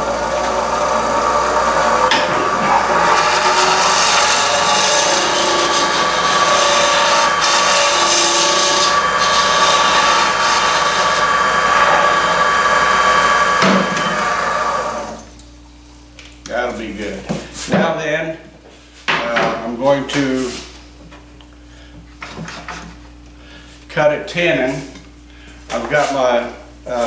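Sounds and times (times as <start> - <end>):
wood lathe scraping wood: 0.0 - 15.3
faint motor whine: 0.0 - 17.8.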